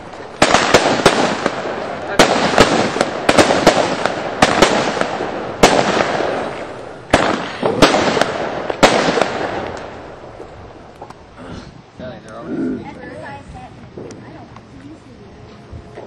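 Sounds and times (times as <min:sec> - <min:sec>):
fireworks bangs: 0:00.0 - 0:11.4
fireworks crackling rumble: 0:00.0 - 0:16.0.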